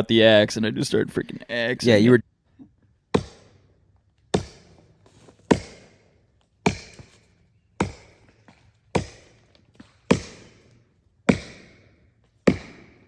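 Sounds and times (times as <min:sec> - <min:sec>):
axe chopping tree trunk: 0:03.1 - 0:03.6, 0:04.3 - 0:13.0.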